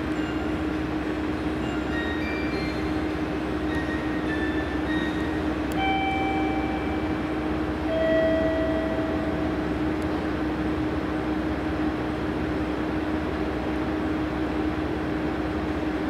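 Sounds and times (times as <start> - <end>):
train squealing: 0.0 - 9.6
electric trains humming: 0.0 - 16.0.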